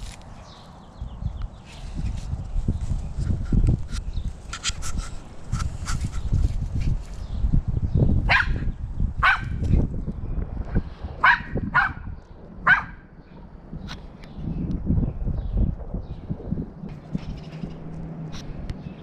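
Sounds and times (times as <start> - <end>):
wind rumble on microphone: 0.0 - 19.0
dog barking: 8.3 - 9.6, 11.2 - 13.0.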